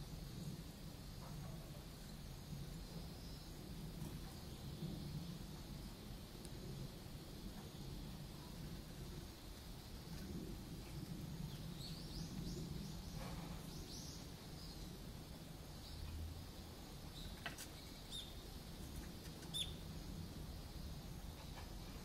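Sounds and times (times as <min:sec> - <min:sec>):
low steady hum: 0:00.0 - 0:22.0
small birds chirping: 0:07.4 - 0:22.0.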